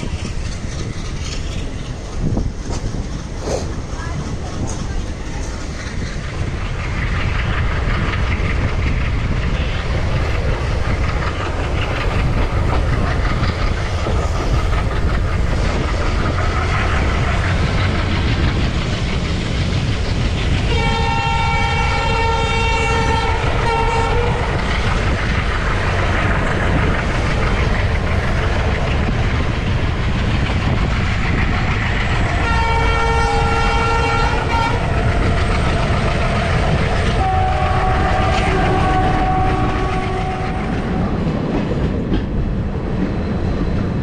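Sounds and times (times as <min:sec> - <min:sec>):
train rumble and wheel clatter: 0:00.0 - 0:44.0
locomotive horn blasts: 0:20.7 - 0:24.4, 0:37.2 - 0:40.7.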